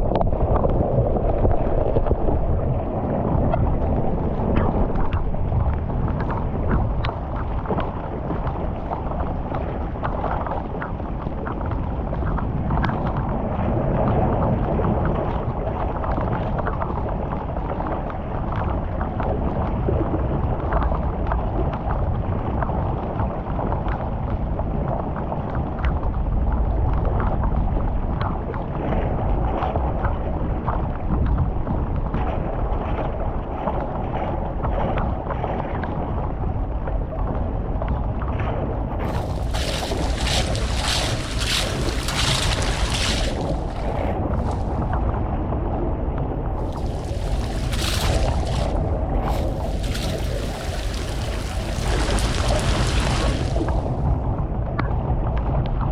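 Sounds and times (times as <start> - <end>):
flowing water rushing and splashing: 39.0 - 45.2, 46.6 - 54.4.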